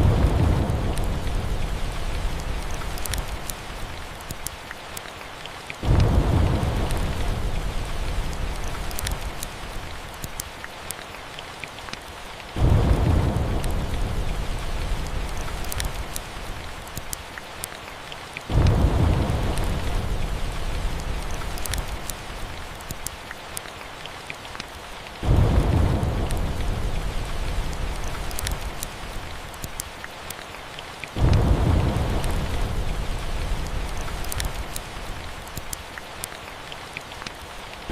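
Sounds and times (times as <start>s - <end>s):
rolls of thunder: 0.0s - 1.9s, 5.8s - 7.9s, 12.6s - 15.3s, 18.5s - 21.3s, 25.2s - 28.0s
steady rain: 0.0s - 37.9s
wood fire crackling: 0.0s - 37.9s.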